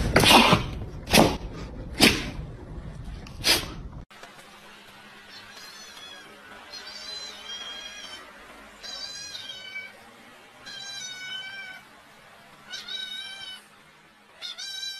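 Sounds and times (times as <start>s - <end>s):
cat meowing: 5.4s - 10.0s, 10.6s - 11.8s, 12.7s - 13.7s, 14.4s - 14.9s.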